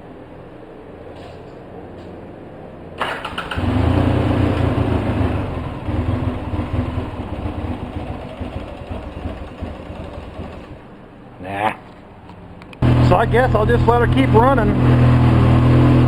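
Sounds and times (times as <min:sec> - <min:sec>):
atv engine cranking and running: 0:03.0 - 0:10.9, 0:12.8 - 0:16.0.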